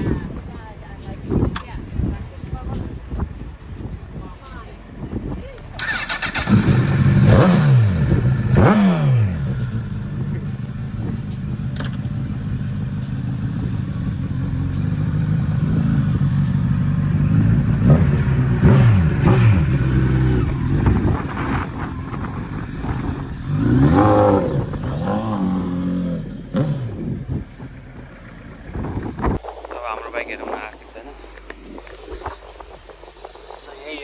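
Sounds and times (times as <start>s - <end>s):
motorcycle engine revving: 5.7s - 29.4s.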